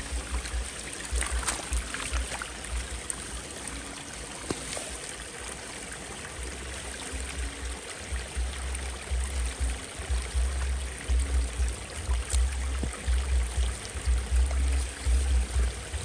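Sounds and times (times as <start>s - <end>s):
deep low thumps: 0.0s - 3.1s, 6.5s - 16.0s
rushing water: 0.0s - 16.0s.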